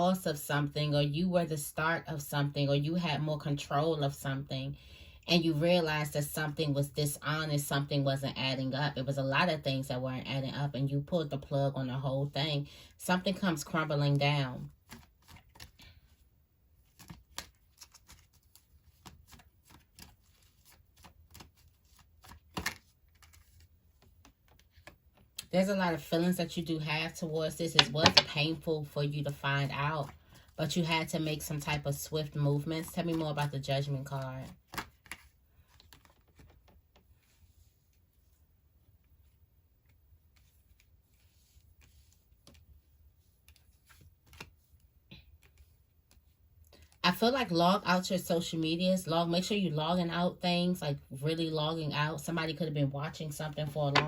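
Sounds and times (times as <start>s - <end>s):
cards being shuffled: 14.8s - 16.2s, 16.8s - 25.4s, 27.7s - 28.5s, 34.1s - 38.4s, 40.3s - 47.0s
cards clicking and tapping: 27.8s - 28.3s.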